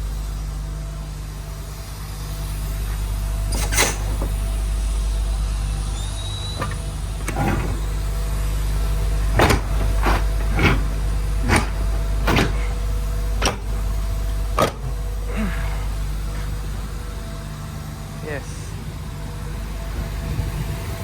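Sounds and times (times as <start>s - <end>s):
diesel truck engine idling: 0.0s - 21.0s
sharp clicks or knocks: 13.4s - 13.7s.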